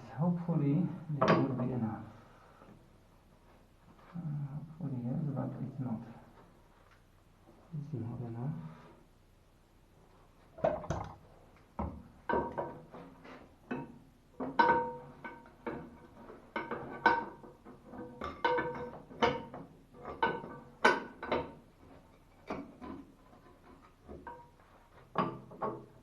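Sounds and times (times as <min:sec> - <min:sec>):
metal clinks and knocks: 0:12.2 - 0:26.0.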